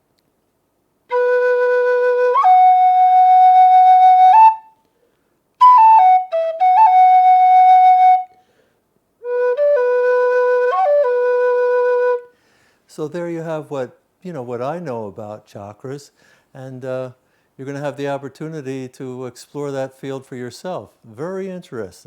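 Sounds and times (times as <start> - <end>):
flute playing long held notes: 1.1 - 4.8, 5.6 - 8.4, 9.2 - 12.3.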